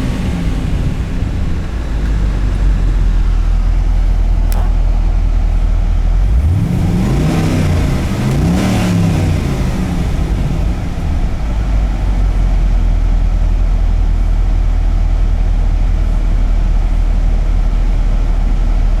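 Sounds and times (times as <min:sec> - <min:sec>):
car engine revving: 0:00.0 - 0:12.5
car engine idling: 0:00.0 - 0:19.0.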